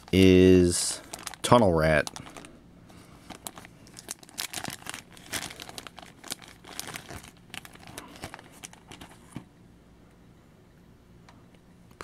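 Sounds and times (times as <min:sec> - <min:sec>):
packaging crinkling: 0:00.0 - 0:09.5.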